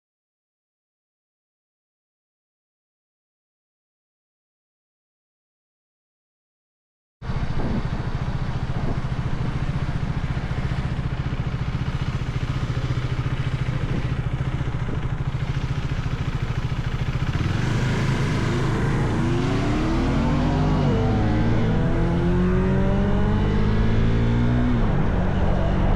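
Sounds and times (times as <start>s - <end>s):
motorcycle engine revving: 7.2s - 25.9s.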